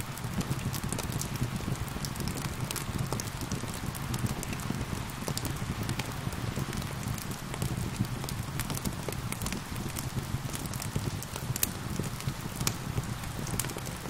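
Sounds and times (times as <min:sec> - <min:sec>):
fire crackling and popping: 0:00.0 - 0:14.0
steady rain: 0:00.0 - 0:14.0.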